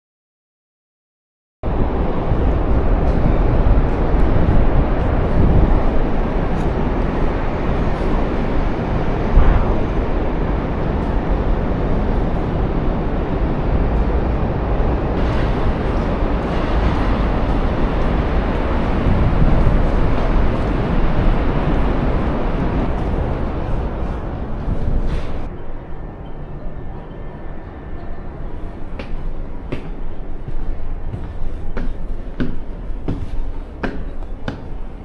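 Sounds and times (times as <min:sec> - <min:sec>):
wind blowing across microphone: 0:01.6 - 0:26.9.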